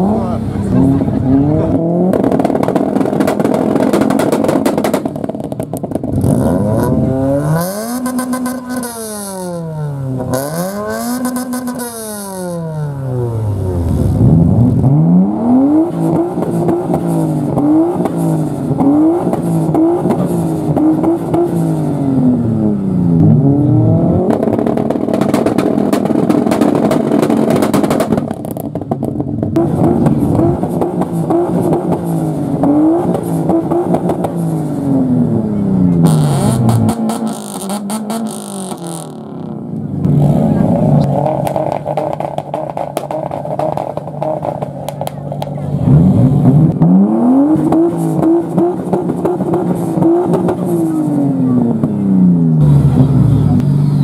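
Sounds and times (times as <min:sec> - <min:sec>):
dense exhaust crackling: 0:00.0 - 0:10.3
car engine revving in blips: 0:00.0 - 0:54.0.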